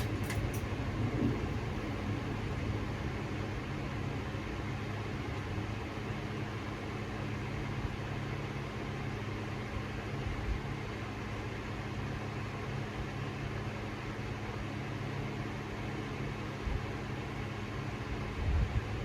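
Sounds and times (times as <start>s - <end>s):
low motor hum: 0.0s - 11.0s
ceiling fan air rush: 0.0s - 19.0s.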